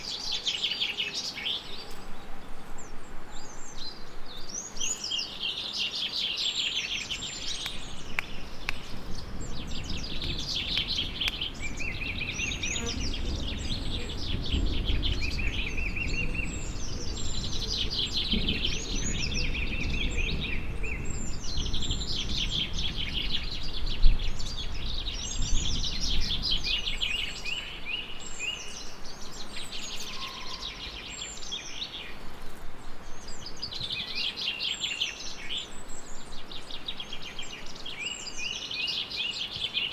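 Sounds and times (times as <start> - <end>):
songbirds singing trilled phrases: 2.7 - 32.2
distant thunder rumble: 7.3 - 28.2.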